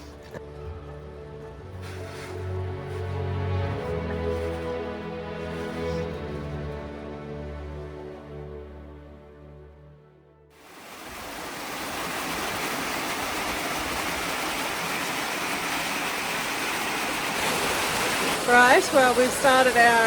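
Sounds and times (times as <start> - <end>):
background music: 0.0 - 10.6.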